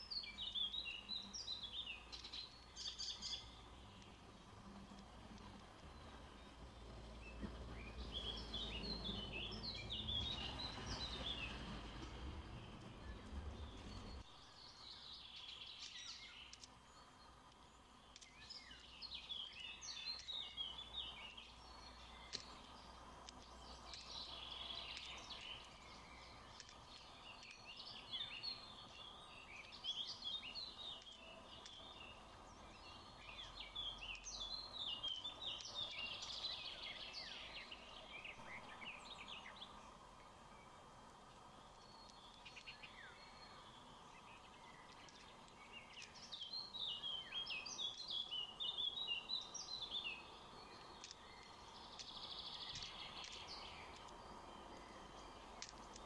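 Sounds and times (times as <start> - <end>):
birds chirping faintly: 0.0 - 56.0.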